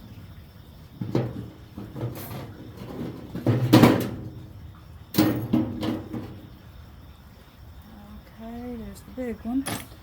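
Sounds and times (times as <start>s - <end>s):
metal garbage can clanking: 0.9s - 6.6s.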